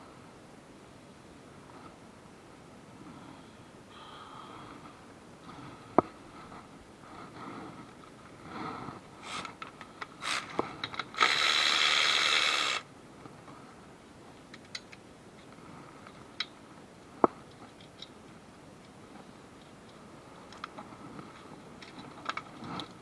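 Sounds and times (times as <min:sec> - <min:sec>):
power tool burst: 0:11.1 - 0:12.8.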